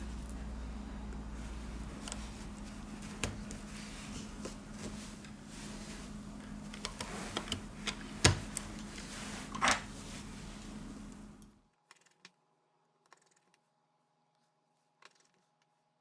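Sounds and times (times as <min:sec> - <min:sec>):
low background hum: 0:00.0 - 0:11.8.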